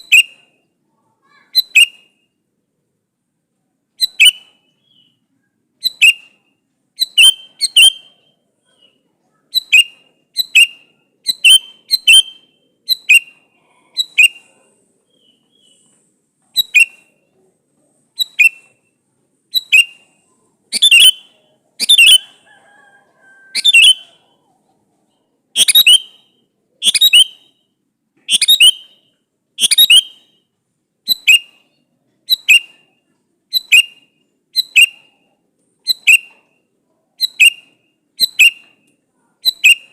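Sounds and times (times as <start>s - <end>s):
bulbul calling sharp notes: 5.8s - 8.3s, 9.5s - 14.5s, 16.5s - 17.2s, 19.5s - 22.4s, 25.6s - 31.7s, 32.3s - 35.2s, 37.2s - 39.9s.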